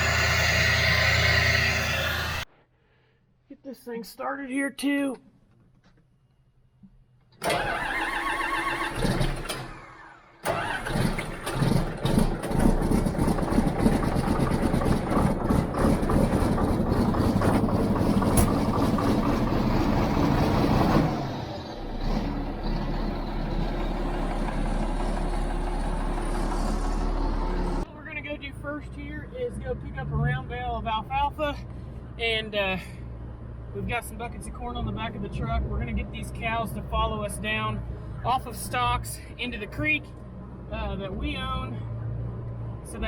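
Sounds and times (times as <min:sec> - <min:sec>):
vehicle engine starting and idling: 0:00.0 - 0:02.5, 0:07.4 - 0:27.9.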